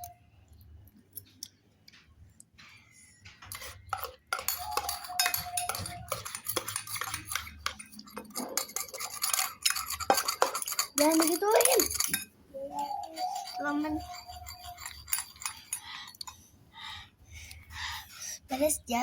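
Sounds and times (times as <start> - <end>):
spoon clinking against bowl: 3.5 - 16.4.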